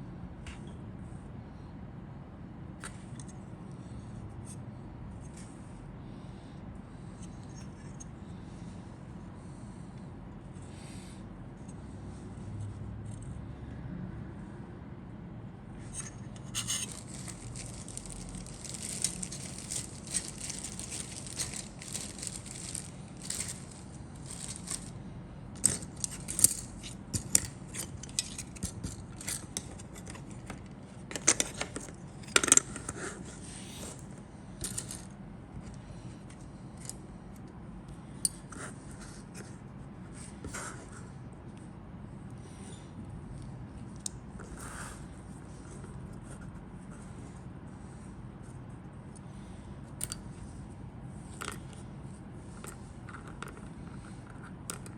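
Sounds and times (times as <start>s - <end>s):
steady low hum: 0.0s - 54.9s
plastic parts rustling and scraping: 15.8s - 37.0s, 49.3s - 54.9s.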